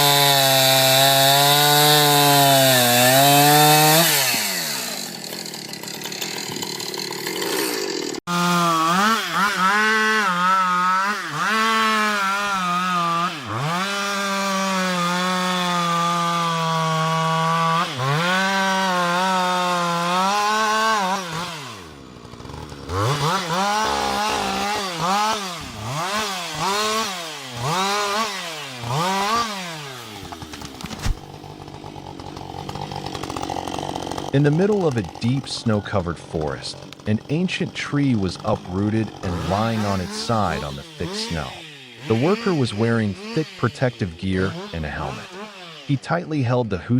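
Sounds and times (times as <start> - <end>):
chainsaw cutting at high revs: 0.0 - 46.9.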